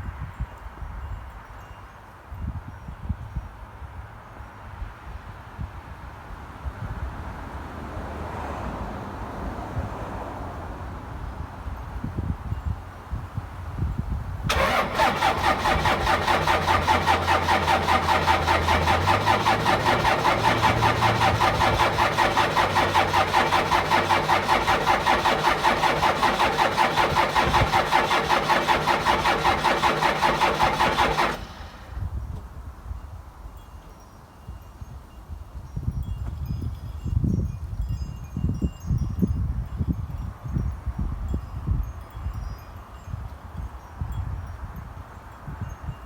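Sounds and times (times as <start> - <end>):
diesel engine cranking: 14.5 - 32.4.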